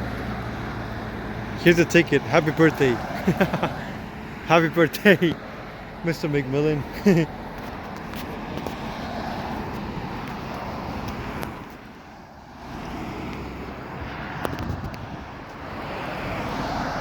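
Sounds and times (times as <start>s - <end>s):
road traffic: 0.0s - 17.0s
wind on microphone: 13.9s - 17.0s.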